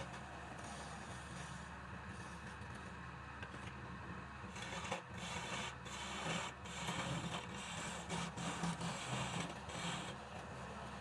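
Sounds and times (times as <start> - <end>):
turning tool scraping wood: 4.5 - 10.2.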